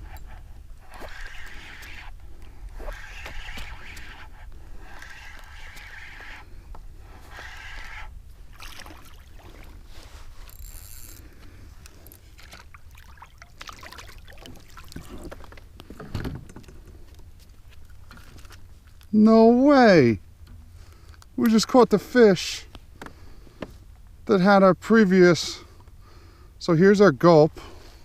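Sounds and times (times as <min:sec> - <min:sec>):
water sloshing: 0:07.2 - 0:10.4, 0:12.0 - 0:16.0.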